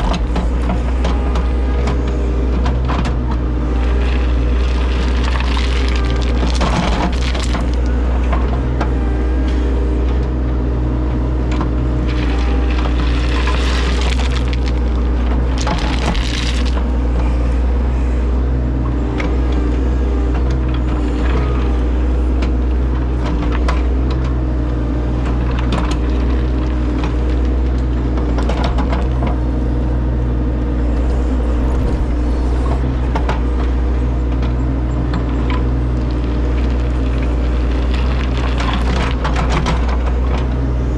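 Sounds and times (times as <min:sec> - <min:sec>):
diesel engine running: 0:00.0 - 0:40.9
stone cracking and scraping: 0:03.8 - 0:07.9, 0:12.0 - 0:16.9, 0:25.4 - 0:27.9, 0:31.0 - 0:33.5, 0:35.2 - 0:40.0.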